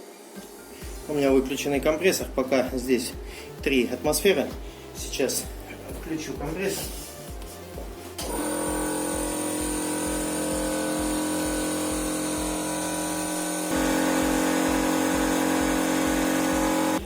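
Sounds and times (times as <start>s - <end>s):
air compressor running: 7.8s - 17.0s.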